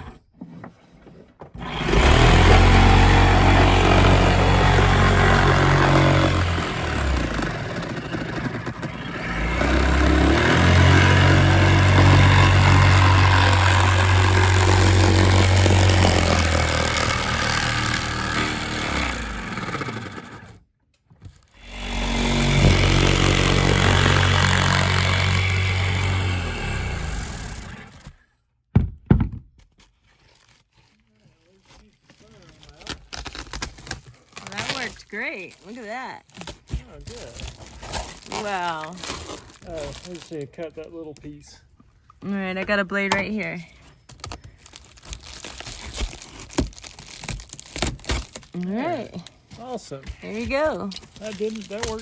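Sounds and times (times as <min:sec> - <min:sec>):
power saw cutting sheet metal: 0:01.6 - 0:20.6, 0:21.6 - 0:28.2
knocks: 0:28.7 - 0:29.5.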